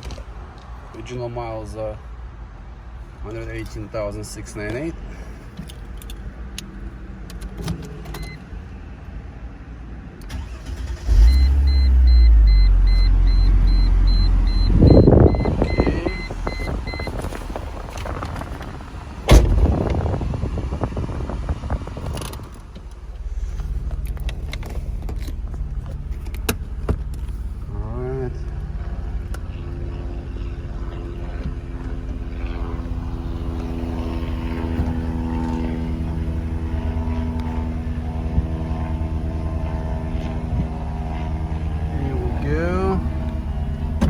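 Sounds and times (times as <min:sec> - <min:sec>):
car engine starting and idling: 0:10.1 - 0:44.0
dashboard chime beeping: 0:11.7 - 0:17.2
sharp bang: 0:19.3 - 0:20.2.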